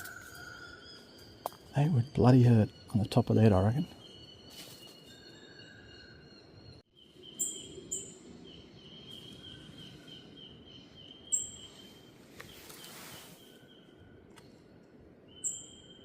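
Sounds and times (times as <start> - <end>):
insect drone: 0.0 - 12.3
high bird chirps: 0.0 - 14.6, 15.3 - 16.0.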